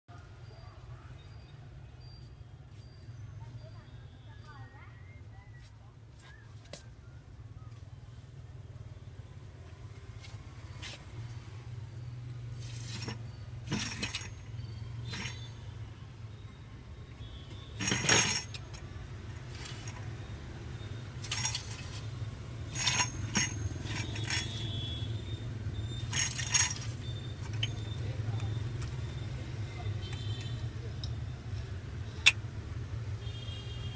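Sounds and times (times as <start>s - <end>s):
sharp metal clinks: 12.9s - 15.7s, 17.8s - 20.2s, 20.9s - 22.1s, 22.7s - 29.3s, 29.9s - 31.4s.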